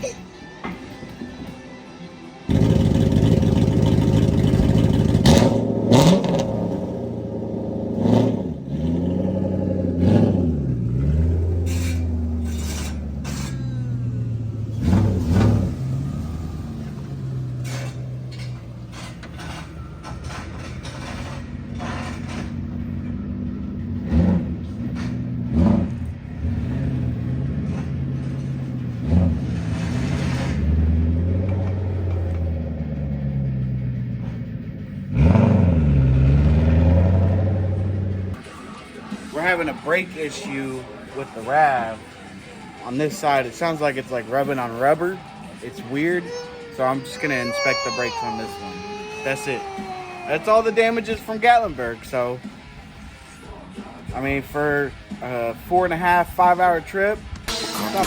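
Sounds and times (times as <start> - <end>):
car engine revving: 2.5 - 47.2.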